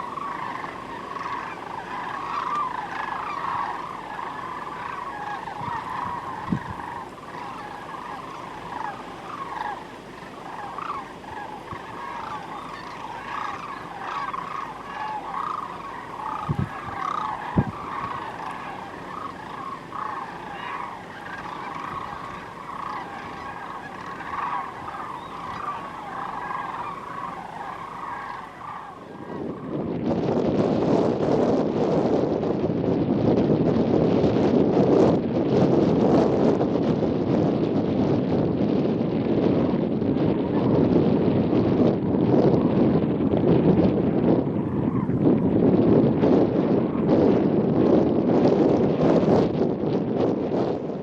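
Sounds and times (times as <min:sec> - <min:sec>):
flock of birds honking: 0:00.0 - 0:30.1, 0:44.5 - 0:45.2.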